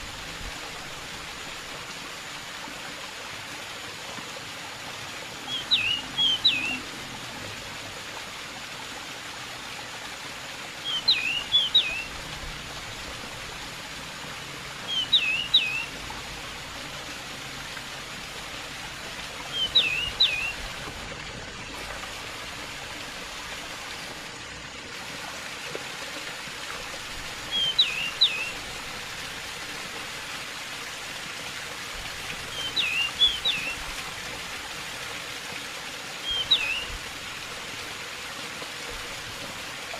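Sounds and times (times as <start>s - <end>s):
running water rushing: 0.0s - 39.9s
bird chirping: 5.5s - 6.8s, 10.8s - 12.1s, 14.9s - 15.9s, 19.5s - 20.6s, 27.5s - 28.5s, 32.5s - 33.8s, 36.2s - 36.9s.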